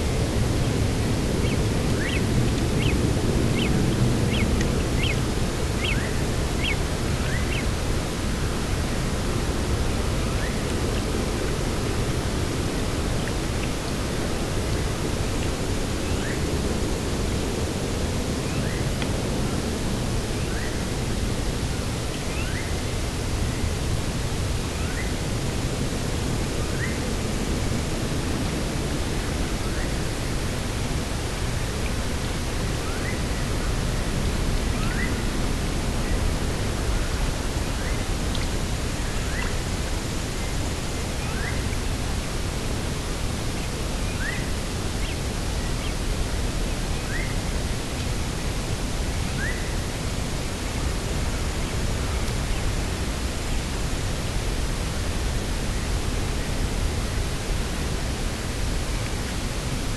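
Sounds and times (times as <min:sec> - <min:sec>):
small bird chirping: 0:01.4 - 0:02.2.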